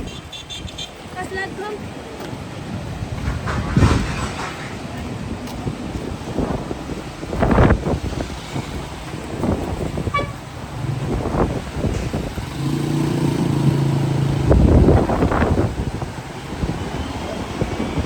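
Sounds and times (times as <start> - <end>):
vehicle horn honking: 0.0 - 1.0, 10.0 - 10.5
street traffic rumbling: 0.0 - 18.0
wind buffeting microphone: 0.0 - 18.0.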